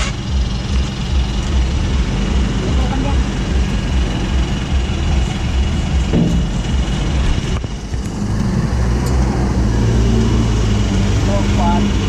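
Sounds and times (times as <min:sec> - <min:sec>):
truck diesel engine drone: 0:00.0 - 0:12.0.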